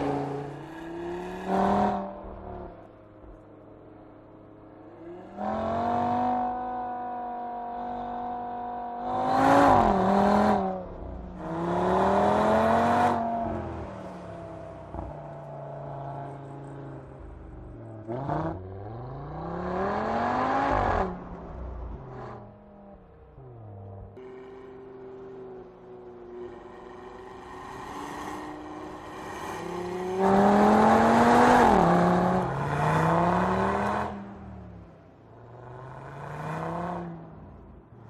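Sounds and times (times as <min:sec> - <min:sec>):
car engine accelerating hard: 0:04.9 - 0:23.1, 0:23.7 - 0:37.8.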